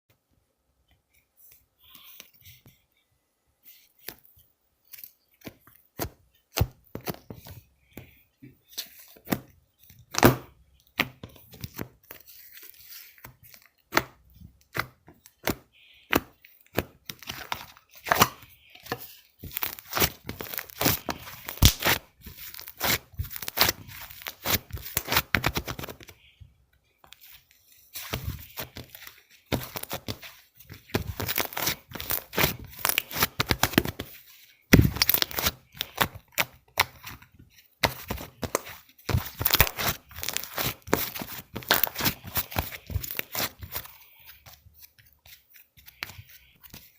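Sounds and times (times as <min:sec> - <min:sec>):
slime squishing and popping: 0:19.4 - 0:25.8, 0:34.7 - 0:37.0.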